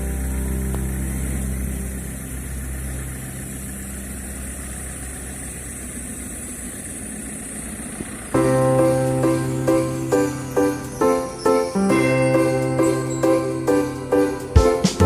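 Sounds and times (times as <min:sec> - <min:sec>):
held musical chord: 0:00.0 - 0:04.4, 0:08.4 - 0:15.0
steady low rumble: 0:00.0 - 0:11.0.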